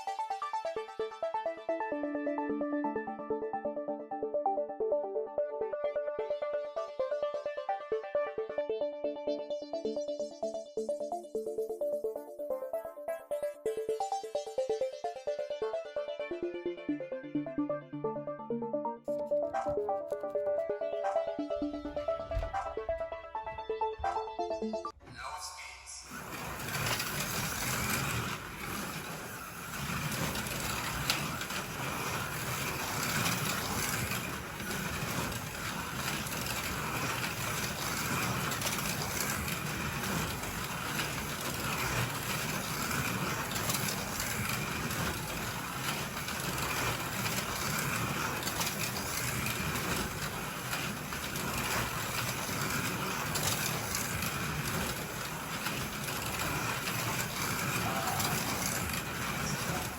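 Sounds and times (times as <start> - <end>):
slot car motors whining: 26.1 - 59.9.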